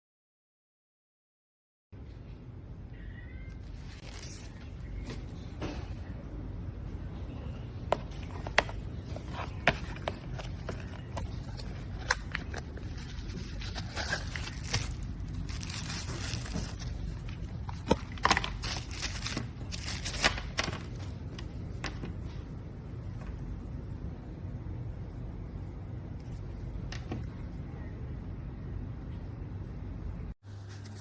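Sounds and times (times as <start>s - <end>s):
scraping and rustling: 8.0s - 21.0s.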